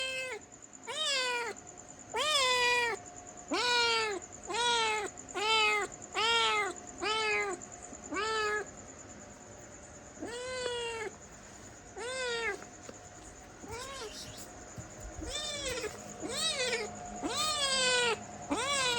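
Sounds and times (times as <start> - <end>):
cat meowing: 0.0 - 8.7, 10.2 - 11.2, 12.0 - 12.7, 13.6 - 14.5, 15.1 - 18.9
faint steady whine: 0.0 - 18.9.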